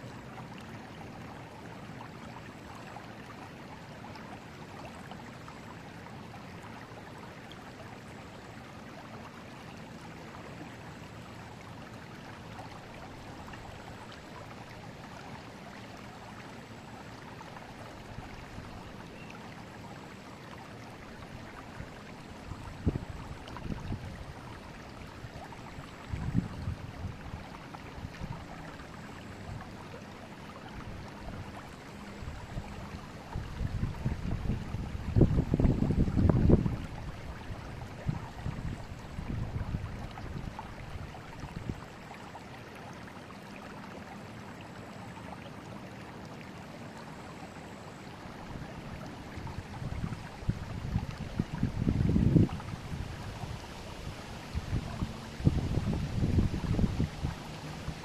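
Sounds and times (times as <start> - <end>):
river flowing: 0.0 - 58.0.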